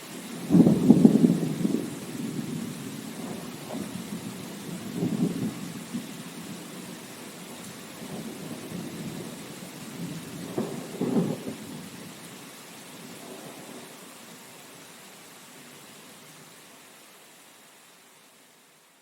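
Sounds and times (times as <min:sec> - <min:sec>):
steady rain: 0:00.0 - 0:19.0
thunder rumbling: 0:00.3 - 0:12.0.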